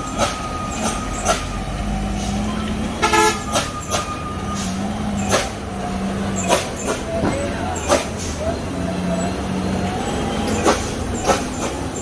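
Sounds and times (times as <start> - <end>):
heavy vehicle engine running: 0.0 - 12.0
horn honk: 2.5 - 4.8.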